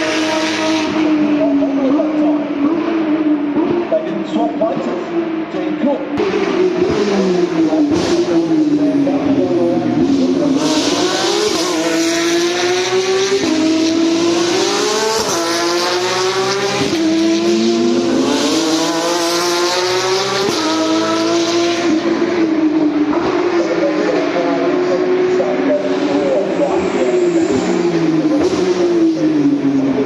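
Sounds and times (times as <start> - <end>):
race cars accelerating: 0.0 - 30.0.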